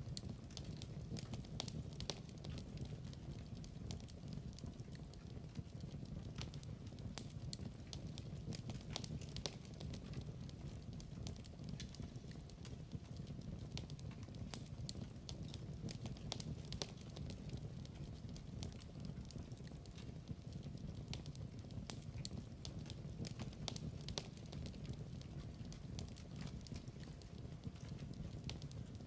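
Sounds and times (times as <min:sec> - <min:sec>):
low rumble of flame: 0:00.0 - 0:29.0
sharp fire pops and snaps: 0:00.0 - 0:29.0
wood fire crackling: 0:00.0 - 0:29.0.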